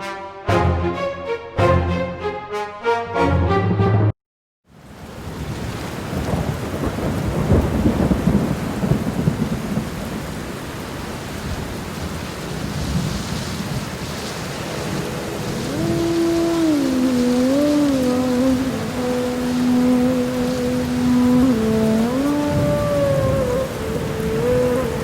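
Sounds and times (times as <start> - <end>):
sliding melodic tune: 0.0 - 4.1, 14.6 - 25.0
rain falling: 4.7 - 25.0.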